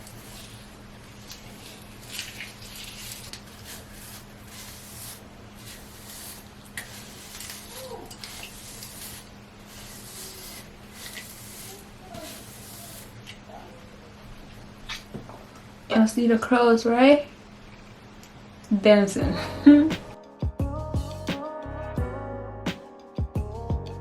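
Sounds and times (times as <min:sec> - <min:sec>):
hands squishing wet hair: 0:00.0 - 0:13.4
low electrical hum: 0:00.0 - 0:22.7.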